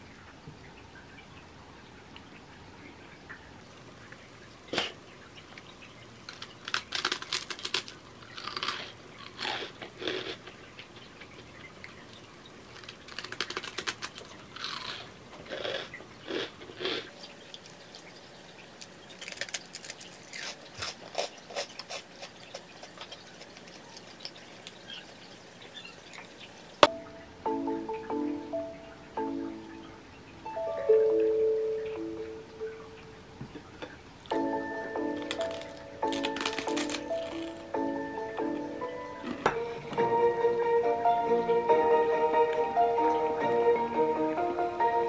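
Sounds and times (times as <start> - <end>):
crunching crisp biscuit: 6.3 - 17.9, 18.8 - 25.1, 35.1 - 37.8.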